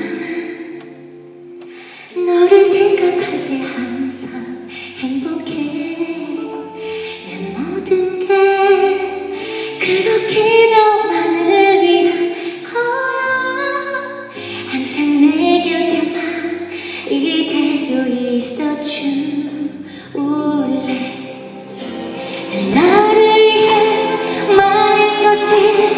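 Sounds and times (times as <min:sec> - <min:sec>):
woman singing slow song: 0:14.7 - 0:25.9
orchestra playing: 0:20.6 - 0:25.9.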